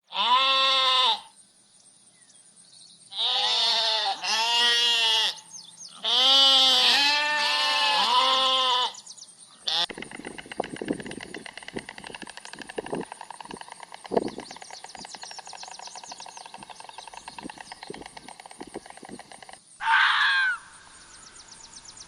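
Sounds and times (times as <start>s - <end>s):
farm animal bleating: 0.1s - 1.3s, 3.1s - 9.0s, 9.6s - 10.0s.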